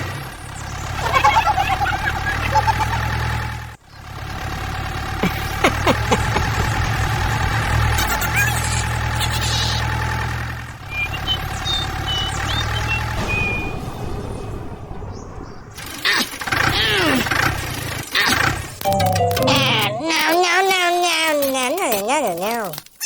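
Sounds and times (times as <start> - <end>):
engine whine: 0.0 - 20.4
vehicle engine humming: 0.0 - 21.8
squeaky chirps: 5.3 - 10.0, 10.8 - 13.9.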